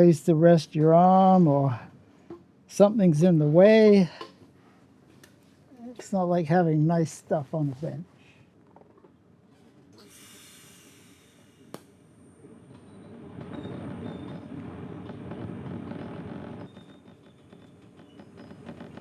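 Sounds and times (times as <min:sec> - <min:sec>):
welding arc hiss and buzz: 0:10.0 - 0:19.0.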